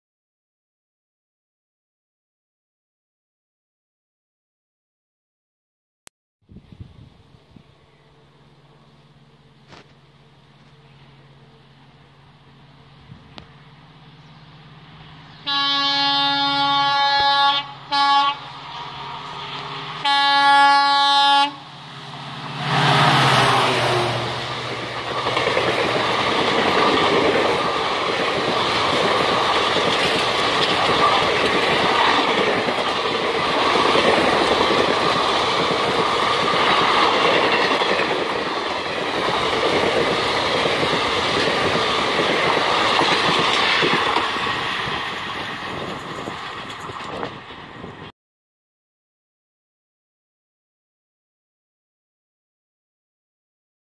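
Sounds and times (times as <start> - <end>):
locomotive rushing past: 7.2 - 48.1
locomotive air horn blasts: 15.4 - 21.8
train coaches rumbling and clattering: 21.6 - 48.1.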